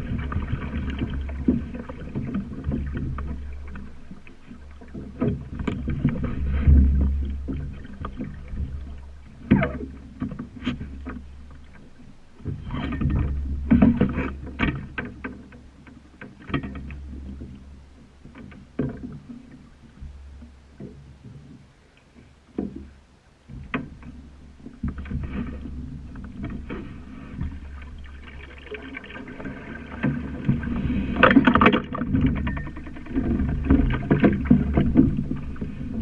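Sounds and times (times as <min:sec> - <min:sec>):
steady low rumble: 0:00.0 - 0:14.5
sharp knocks from boat: 0:00.0 - 0:36.0
water slapping against boat hull: 0:00.0 - 0:36.0.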